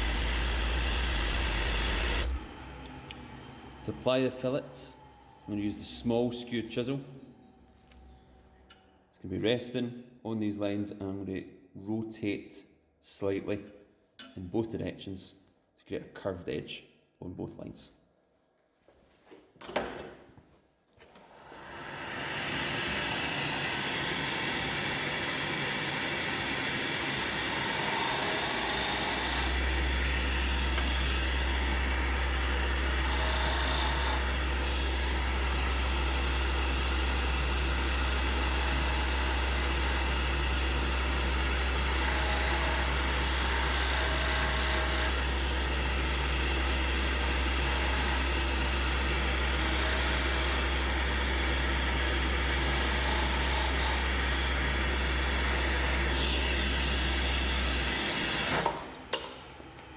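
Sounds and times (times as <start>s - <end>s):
wood lathe running: 0.0s - 7.0s, 21.3s - 59.9s.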